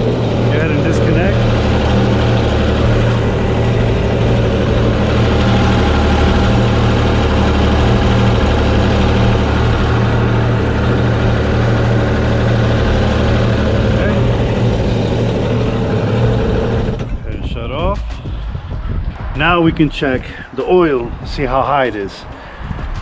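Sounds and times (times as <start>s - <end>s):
watercraft engine idling: 0.0s - 17.4s.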